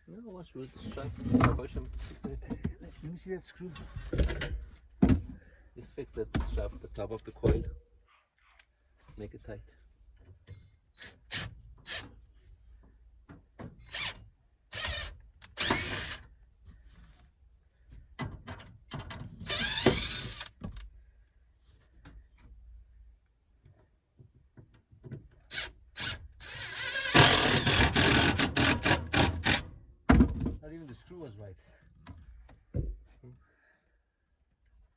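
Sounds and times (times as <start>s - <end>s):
power drill driving screws: 13.8s - 16.3s, 19.4s - 20.6s, 25.5s - 29.7s.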